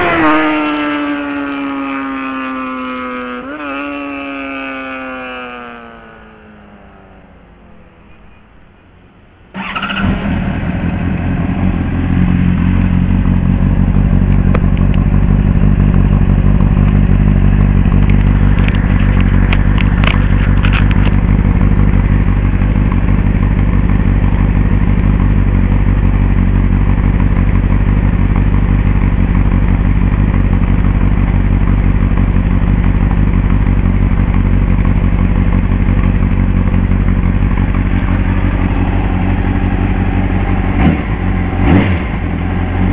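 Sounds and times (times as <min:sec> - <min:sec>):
motorcycle engine idling: 0:09.6 - 0:42.9.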